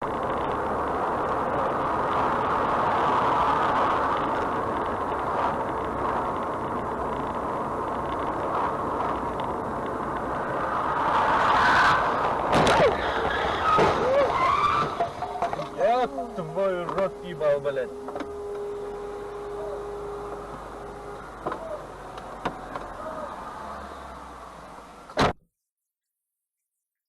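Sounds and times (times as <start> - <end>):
vehicle engine and road rumble: 0.0 - 25.4
sharp crack: 11.4 - 15.6.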